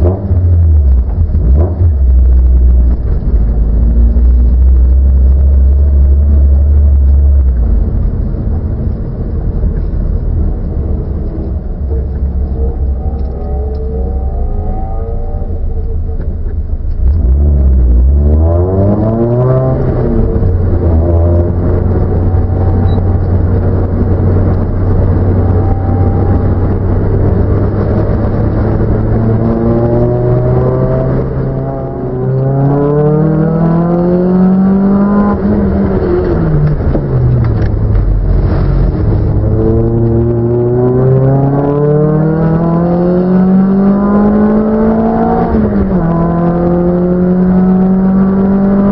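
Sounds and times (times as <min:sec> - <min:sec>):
car engine revving: 0:00.0 - 0:48.9.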